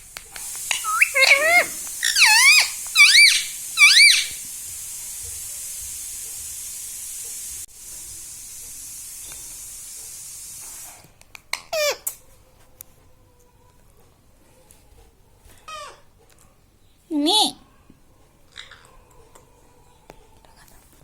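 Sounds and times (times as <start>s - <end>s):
steady hiss: 0.0s - 11.4s
parrot squawking: 0.7s - 4.4s.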